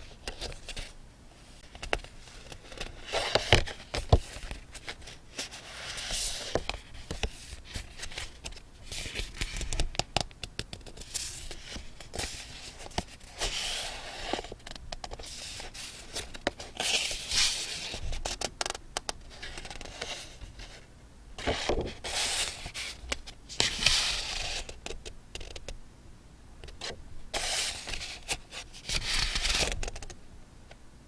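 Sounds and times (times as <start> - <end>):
paper rustling and scraping: 1.6 - 9.8, 11.0 - 14.6, 15.2 - 18.5, 19.3 - 24.8, 26.8 - 30.0
small taps and clicks: 9.5 - 11.0, 18.3 - 19.9.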